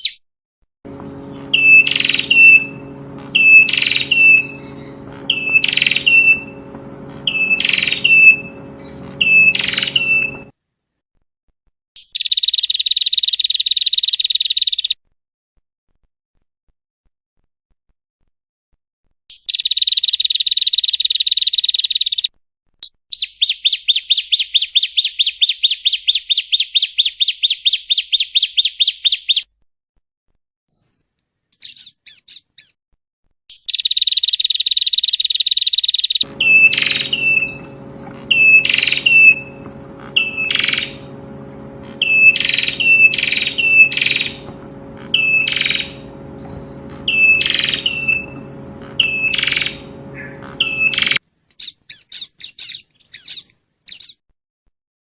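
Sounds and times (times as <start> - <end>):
bird buzzy trill: 0.9 - 10.5, 33.5 - 51.2
rapid repeated bird notes: 0.9 - 10.5, 33.5 - 51.2
steady background hum: 0.9 - 10.5, 36.2 - 51.2
sharp bird chirps: 1.0 - 6.6, 7.2 - 10.5, 12.0 - 15.0, 33.5 - 54.2.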